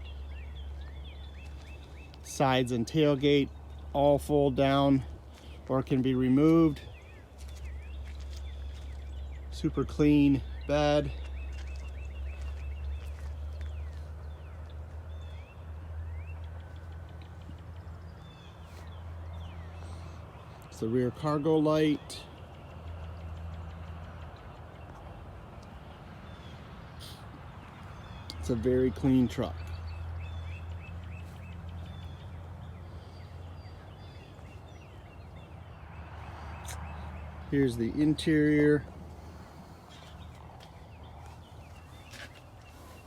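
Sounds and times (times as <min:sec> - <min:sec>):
small birds chirping: 0:00.0 - 0:43.0.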